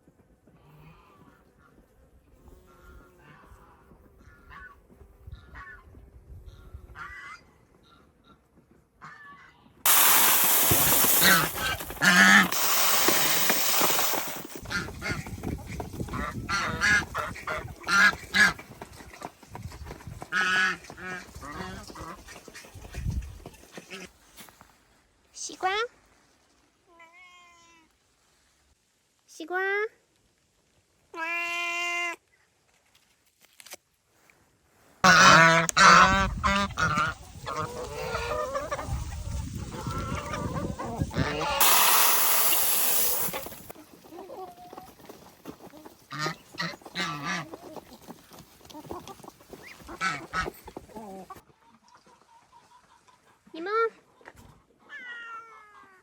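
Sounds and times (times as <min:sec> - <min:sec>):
loud hiss: 0:09.9 - 0:14.7, 0:41.5 - 0:43.8
geese honking: 0:10.0 - 0:15.2, 0:35.0 - 0:43.4.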